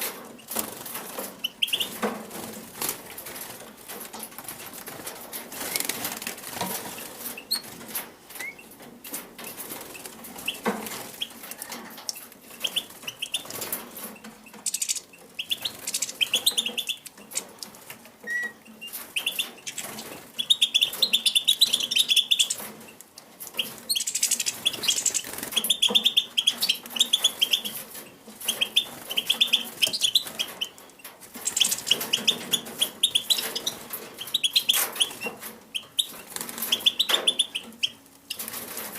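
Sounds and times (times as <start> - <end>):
birds fluttering wings: 0.0 - 18.1, 18.8 - 38.9
quick chirping calls: 1.4 - 2.0, 14.6 - 17.4, 31.4 - 38.4.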